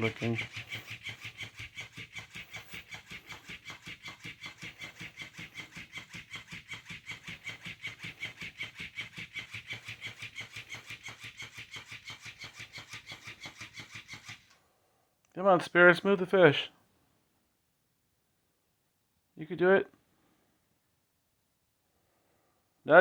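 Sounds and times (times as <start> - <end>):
dog panting: 0.0 - 11.2.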